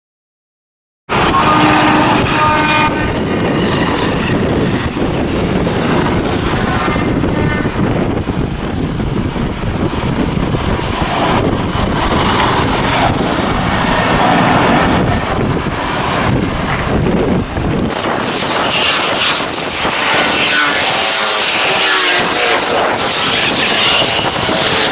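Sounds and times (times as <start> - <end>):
locomotive horn: 1.1 - 3.3, 18.2 - 24.9
diesel locomotive rumbling: 1.1 - 24.9
passing train rushing: 1.1 - 24.9
wind on microphone: 1.1 - 24.9.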